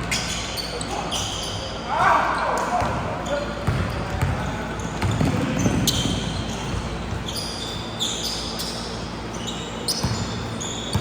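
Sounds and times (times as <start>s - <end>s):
sneaker squeaks: 0.0s - 11.0s
basketball bouncing: 3.6s - 7.3s, 9.9s - 11.0s.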